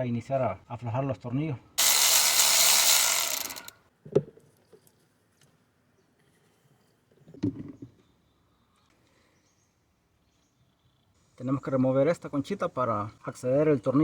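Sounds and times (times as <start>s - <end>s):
ratchet wrench rasping: 1.8s - 3.7s.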